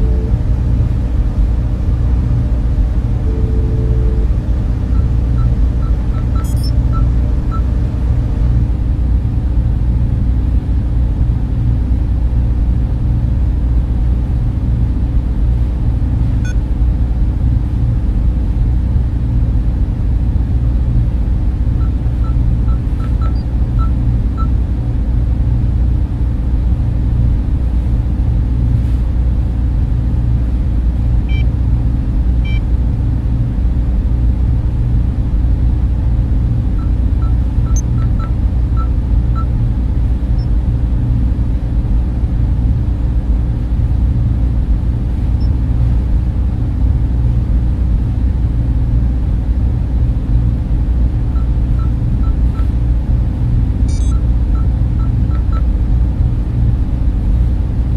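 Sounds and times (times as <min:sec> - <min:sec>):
cooling fans humming: 0:00.0 - 0:57.9
faint short blips: 0:05.0 - 0:07.6, 0:53.9 - 0:55.6.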